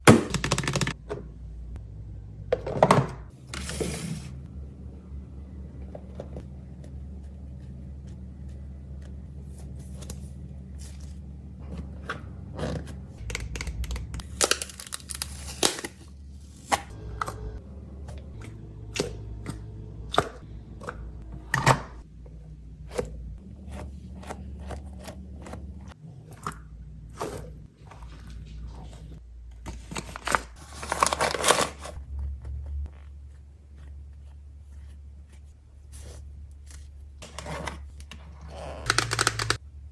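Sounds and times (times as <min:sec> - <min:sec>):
low steady hum: 0:00.0 - 0:39.9
packaging crinkling or tearing: 0:14.2 - 0:16.0.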